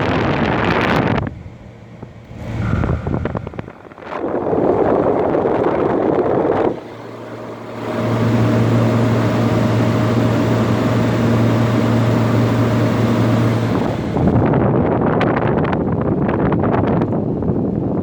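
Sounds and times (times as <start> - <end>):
window air conditioner running: 0.0 - 18.0
rushing noise: 2.2 - 6.8.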